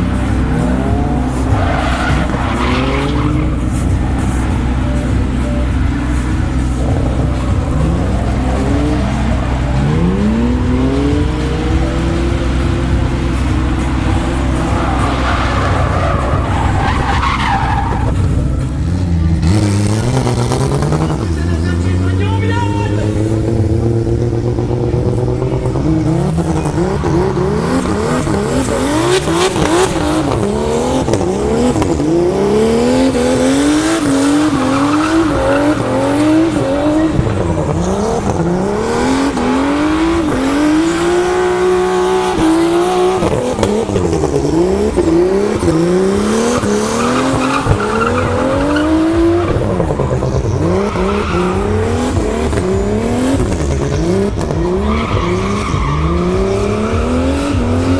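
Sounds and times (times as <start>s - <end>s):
car engine revving: 0.0s - 57.9s
tyre squeal: 13.5s - 21.9s, 45.6s - 52.6s, 53.4s - 57.6s.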